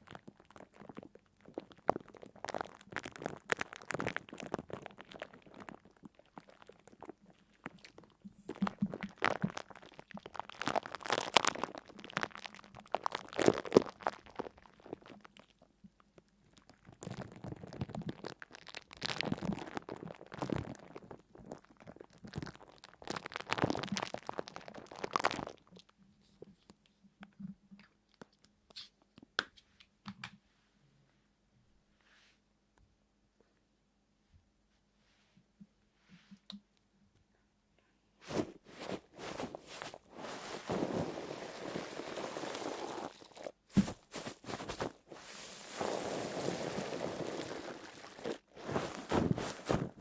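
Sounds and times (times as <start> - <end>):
crisp crunching and crackling: 0.0 - 15.6, 16.4 - 25.9, 38.3 - 50.0.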